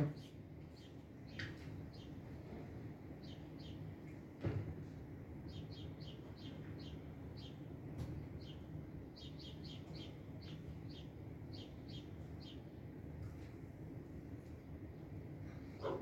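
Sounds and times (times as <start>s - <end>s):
small bird chirping: 0.0s - 2.5s, 3.1s - 4.2s, 5.4s - 12.9s
faint low rumble: 0.0s - 15.8s.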